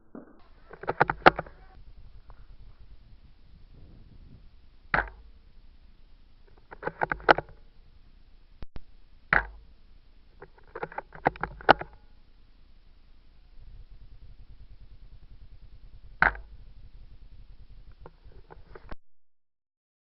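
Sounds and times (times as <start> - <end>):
clusters of clicks: 0.4 - 2.8, 6.4 - 7.9, 10.3 - 12.2.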